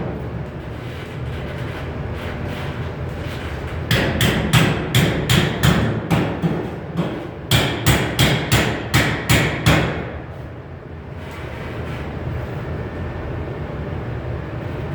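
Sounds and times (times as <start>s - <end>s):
hammer blows on sheet metal: 3.9s - 10.2s.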